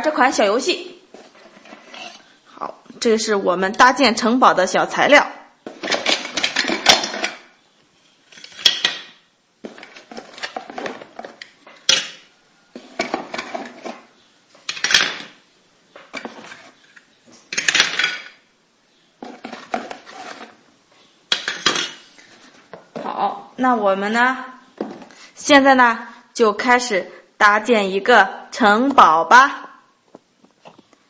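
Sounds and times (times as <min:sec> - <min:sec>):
plastic toy pieces clattering: 0:05.8 - 0:07.4, 0:14.7 - 0:15.3, 0:17.5 - 0:18.4.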